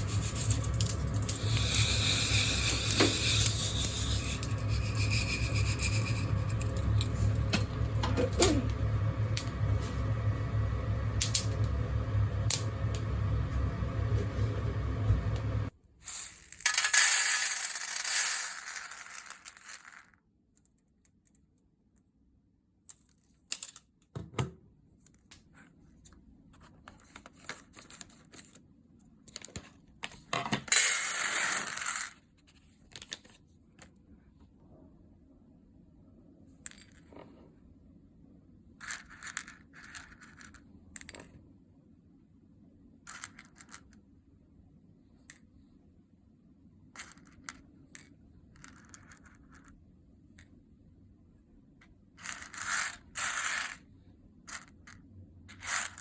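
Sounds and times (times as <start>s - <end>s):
single beans clicking: 0.0s - 7.1s, 16.1s - 20.2s
coffee beans rattling: 0.0s - 7.5s, 16.1s - 20.2s, 52.2s - 53.8s.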